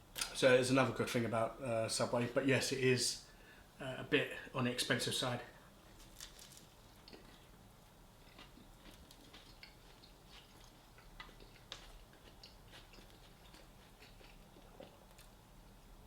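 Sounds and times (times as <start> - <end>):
person chewing: 6.0 - 7.6, 8.2 - 15.5.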